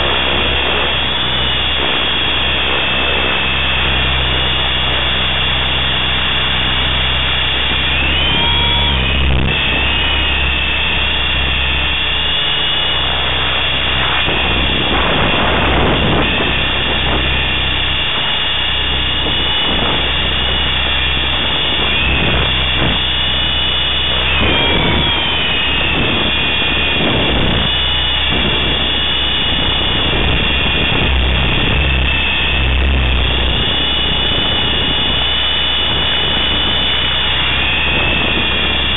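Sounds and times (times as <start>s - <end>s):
rc helicopter motor whine: 0.0s - 38.9s
rotor beating: 0.0s - 38.9s.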